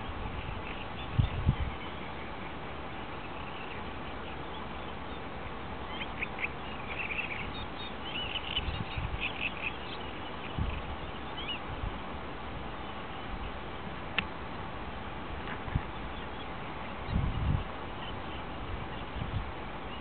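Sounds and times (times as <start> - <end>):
birds chattering calls: 0.0 - 11.7
steady background hiss: 0.0 - 20.0.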